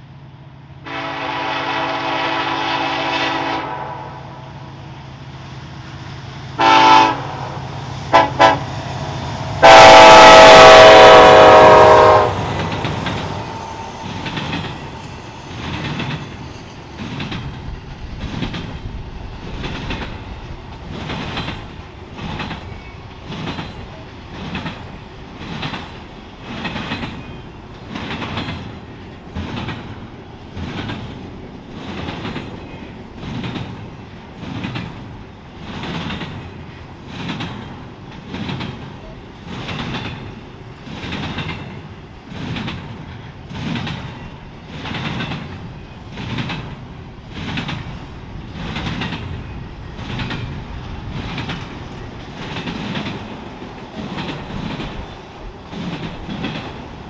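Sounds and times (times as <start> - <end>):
locomotive air horn blasts: 0.8 - 4.4, 6.6 - 8.7, 9.6 - 12.5
train wheels clicking over rail joints: 7.7 - 57.0.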